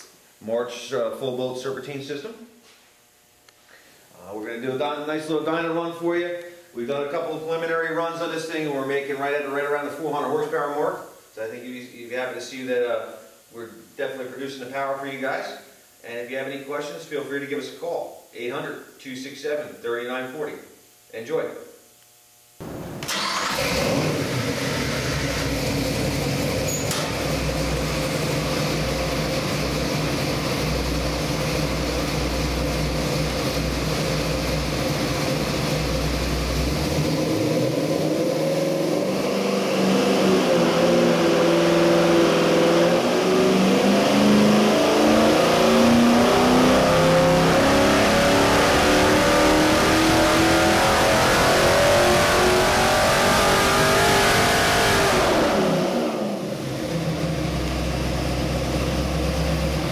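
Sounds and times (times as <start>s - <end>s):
engine revving on dyno: 22.6s - 59.9s.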